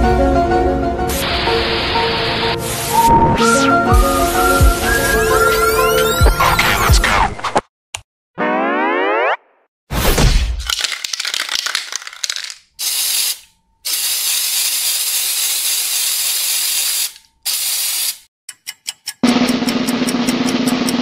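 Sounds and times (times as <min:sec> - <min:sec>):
spray can rattling: 0:10.7 - 0:18.2
spray can hissing: 0:10.8 - 0:18.3
drum roll: 0:19.2 - 0:21.0.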